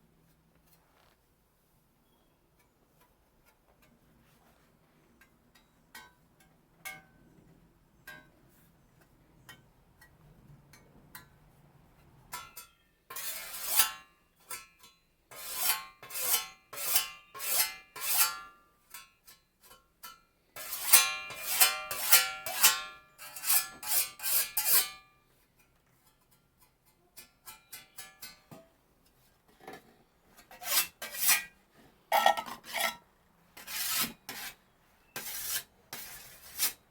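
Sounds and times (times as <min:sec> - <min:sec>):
metal-on-metal strokes: 0:20.6 - 0:25.0, 0:30.4 - 0:33.0, 0:33.6 - 0:36.8.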